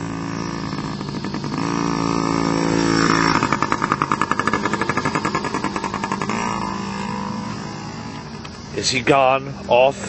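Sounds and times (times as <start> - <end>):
dirt bike engine running: 0.0 - 10.0.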